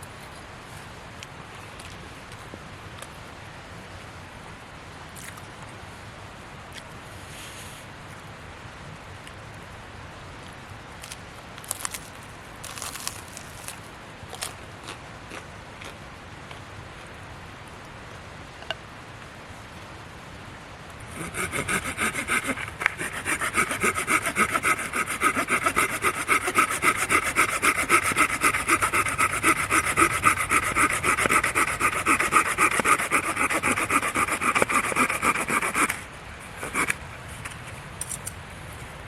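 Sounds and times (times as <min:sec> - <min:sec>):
hand saw cutting wood: 0:21.0 - 0:36.0, 0:36.6 - 0:37.0.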